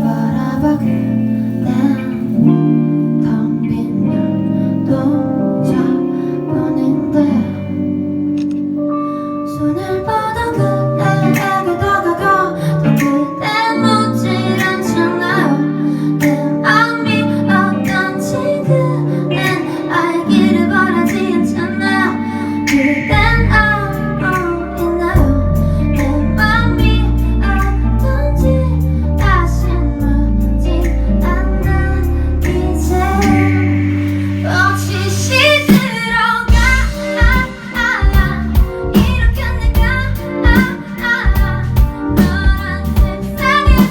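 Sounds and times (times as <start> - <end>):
woman singing: 0.0 - 8.1, 9.1 - 43.9
guitar accompaniment: 0.0 - 43.9
deep bass line: 20.5 - 35.8, 36.5 - 40.7, 41.3 - 43.9.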